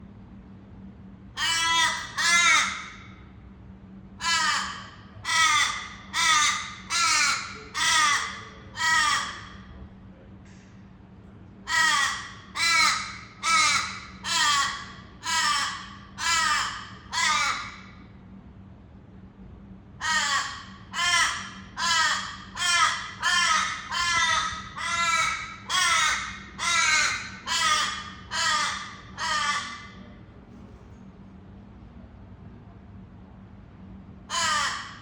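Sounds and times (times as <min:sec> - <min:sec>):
bird harsh calls: 0:11.7 - 0:17.8, 0:20.0 - 0:29.9.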